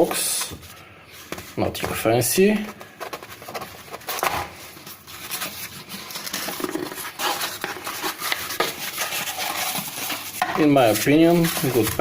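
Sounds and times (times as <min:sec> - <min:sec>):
cardboard box rustling and scraping: 0:02.6 - 0:12.0.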